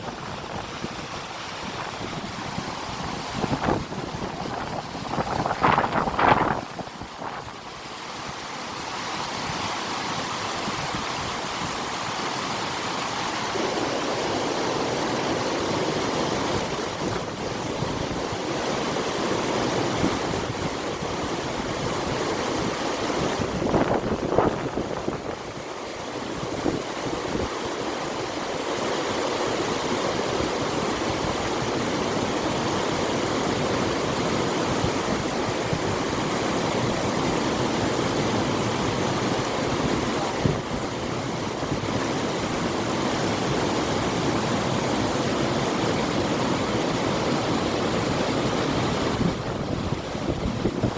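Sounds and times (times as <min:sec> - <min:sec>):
river water rushing: 0:00.0 - 0:50.9
wind: 0:00.0 - 0:50.9.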